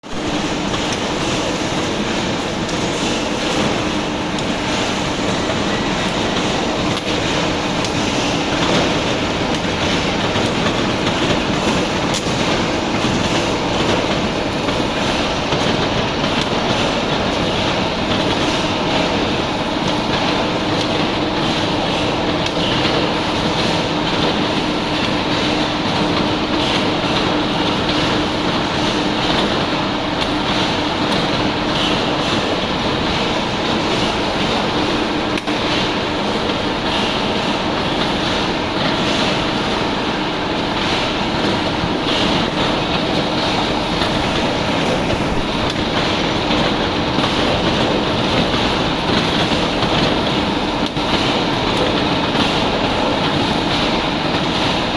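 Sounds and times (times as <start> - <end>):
welding machine clattering: 0.1 - 54.9.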